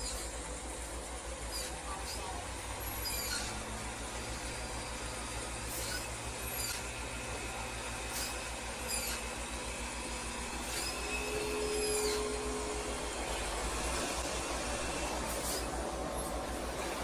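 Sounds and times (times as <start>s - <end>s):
short high squeaks: 0.0s - 0.3s, 1.5s - 3.7s, 4.4s - 7.0s, 8.1s - 9.4s, 10.6s - 13.0s, 15.3s - 16.3s
heavy vehicle engine running: 0.0s - 17.0s.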